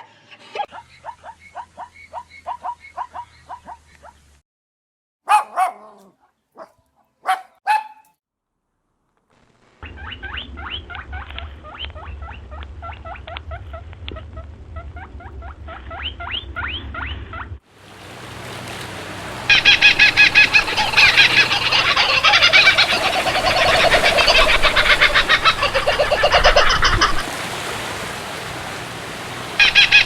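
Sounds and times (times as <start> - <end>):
animal calls: 19.5 - 27.3, 29.6 - 30.0.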